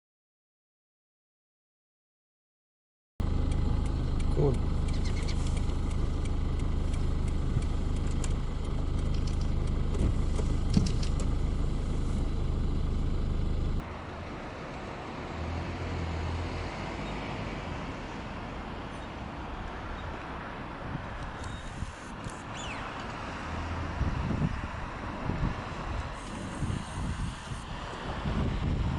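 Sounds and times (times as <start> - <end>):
steady low hum: 3.2 - 13.8.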